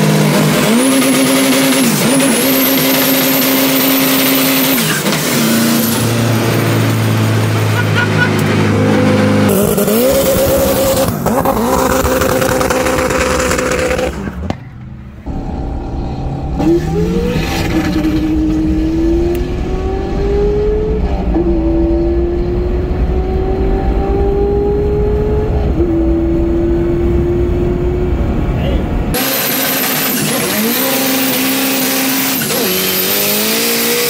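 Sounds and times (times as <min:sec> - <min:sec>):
car engine accelerating: 0:00.0 - 0:34.0
heavy noise: 0:04.8 - 0:22.6.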